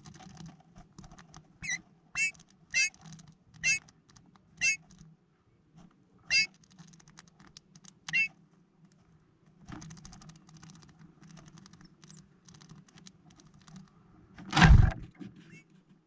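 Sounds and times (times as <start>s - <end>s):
birds pecking seeds at a feeder: 0.0s - 5.1s, 6.3s - 8.3s, 9.6s - 14.0s.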